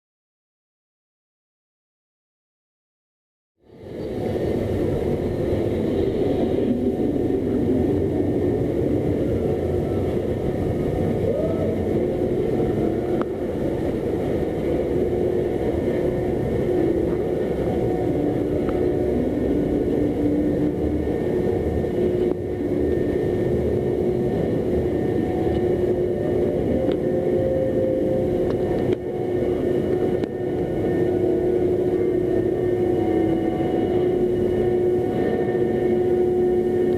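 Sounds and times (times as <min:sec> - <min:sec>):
roller coaster rumble: 0:03.7 - 0:36.9.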